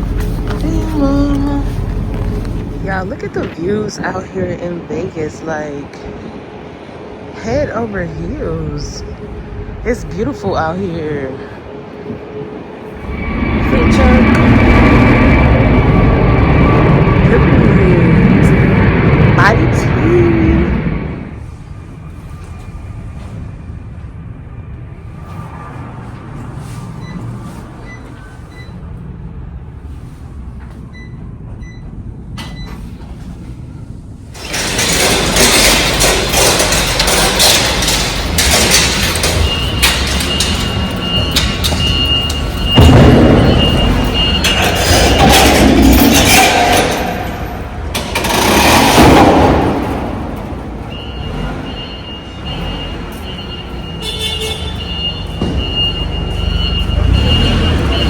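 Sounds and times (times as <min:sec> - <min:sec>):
high whine: 0:00.0 - 0:26.5, 0:32.4 - 0:52.5
loud swells of noise: 0:00.0 - 0:27.0
vehicle engine rumble: 0:00.0 - 0:58.0.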